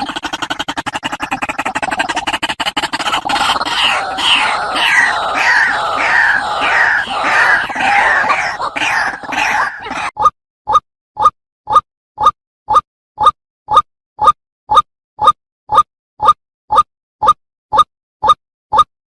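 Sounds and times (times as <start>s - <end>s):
waterhen calling: 3.0s - 10.1s.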